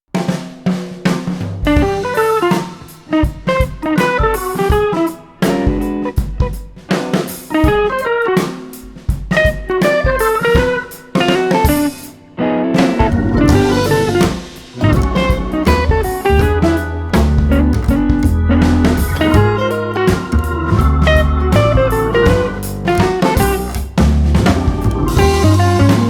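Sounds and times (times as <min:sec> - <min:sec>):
drum kit beat: 0:00.1 - 0:12.2, 0:12.8 - 0:26.0
plucked guitar melody: 0:12.4 - 0:26.0.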